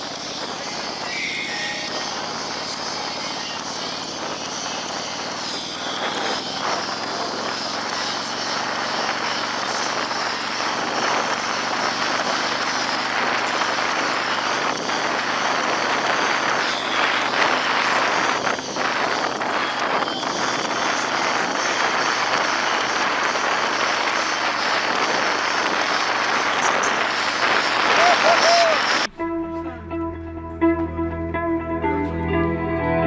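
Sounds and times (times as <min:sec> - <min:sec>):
wind rushing on microphone: 0:00.0 - 0:29.1
motorcycle engine drone: 0:00.0 - 0:33.0.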